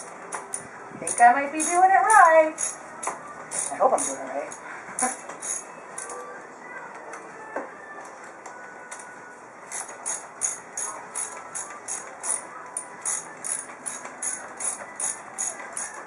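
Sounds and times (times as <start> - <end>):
ratchet wrench clicking: 0.0 - 6.2, 9.7 - 16.0.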